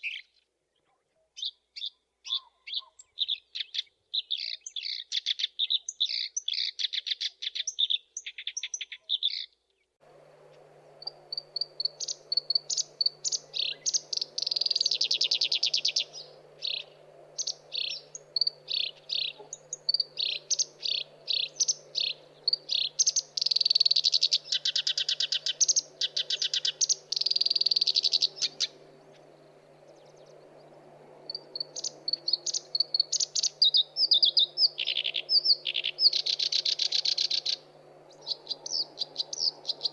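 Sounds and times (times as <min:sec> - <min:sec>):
warbler singing: 0:00.0 - 0:39.9
faint steady hum: 0:10.0 - 0:39.9.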